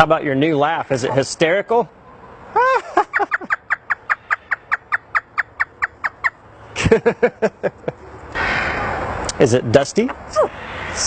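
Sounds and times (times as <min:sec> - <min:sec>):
parrot mimicking laughter: 0:02.5 - 0:06.3.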